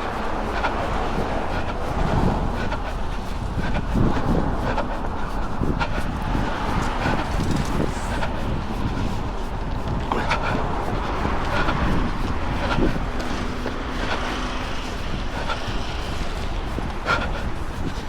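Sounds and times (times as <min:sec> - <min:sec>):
low engine hum: 0:00.0 - 0:18.0
road traffic passing: 0:00.0 - 0:18.0
wind on microphone: 0:00.0 - 0:18.0.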